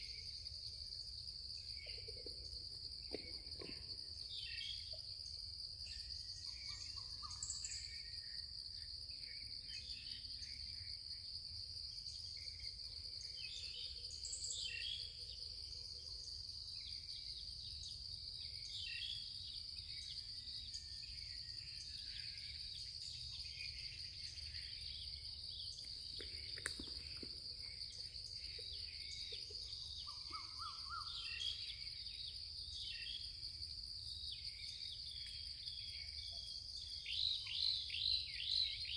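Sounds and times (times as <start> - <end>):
insect drone: 0.0 - 38.9
bird calls: 25.6 - 31.8.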